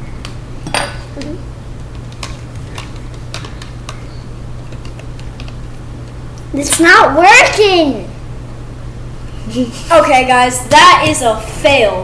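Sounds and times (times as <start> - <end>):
steady low hum: 0.0 - 12.0
utensils clicking and tapping: 0.2 - 6.2.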